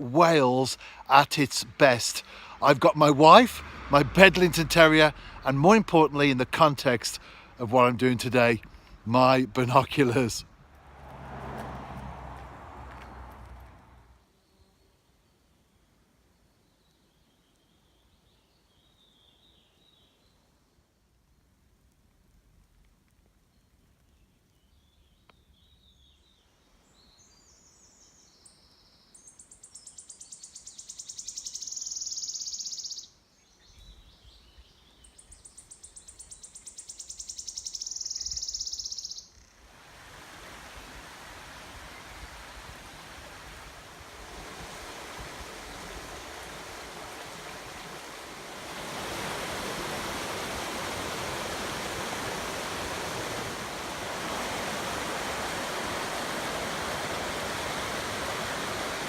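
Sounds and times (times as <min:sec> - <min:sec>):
stream water rushing: 0:00.0 - 0:14.1, 0:39.6 - 0:59.0
bird singing high trills: 0:28.8 - 0:39.6.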